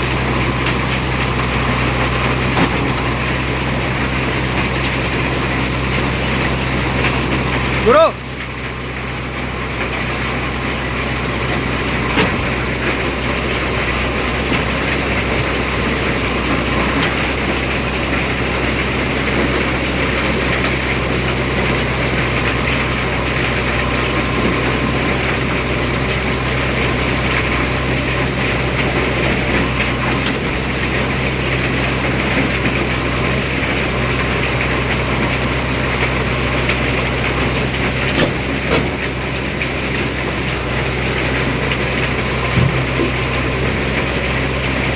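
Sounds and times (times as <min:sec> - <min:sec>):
diesel engine running: 0:00.0 - 0:44.9
short knocks: 0:42.5 - 0:43.2.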